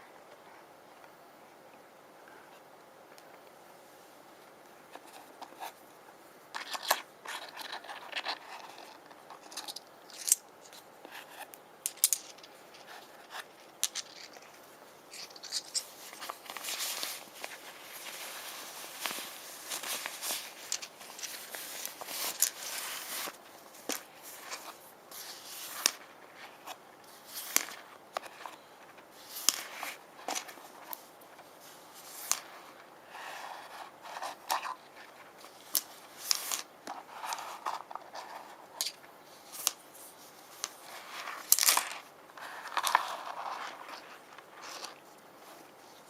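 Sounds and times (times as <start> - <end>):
stones clicking: 11.4 - 14.5.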